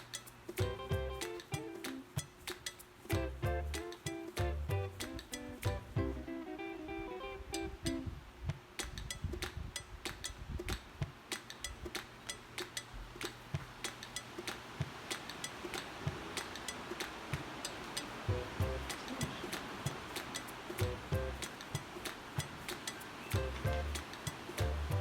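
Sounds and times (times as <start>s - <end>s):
faint hiss: 10.4s - 25.0s.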